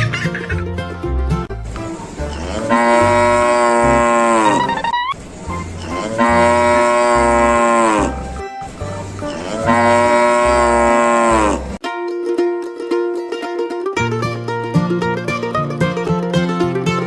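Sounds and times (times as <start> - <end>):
cow mooing: 2.2 - 4.9, 5.8 - 8.4, 9.2 - 11.8.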